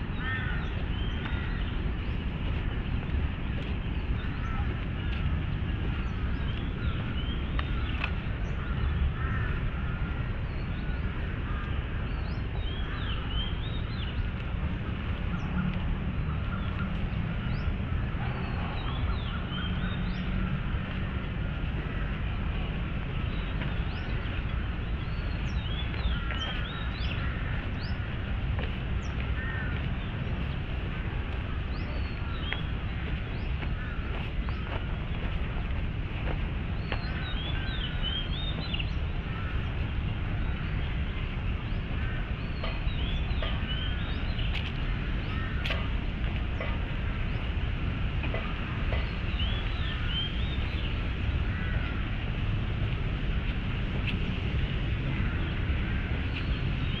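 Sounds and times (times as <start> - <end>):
birds chirping and calling: 0.0 - 52.2
steady low rumble: 0.0 - 57.0.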